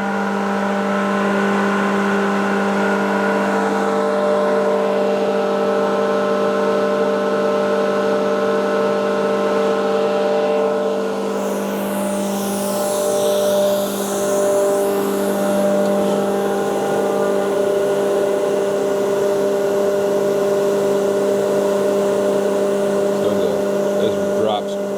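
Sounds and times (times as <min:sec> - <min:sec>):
air compressor humming: 0:10.8 - 0:24.9
high-pitched rushing air hiss: 0:11.0 - 0:24.9.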